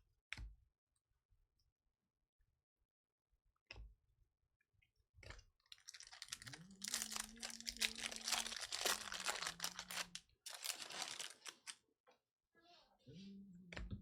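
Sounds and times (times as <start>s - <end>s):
foil wrappers tearing and crinkling: 5.7s - 11.8s.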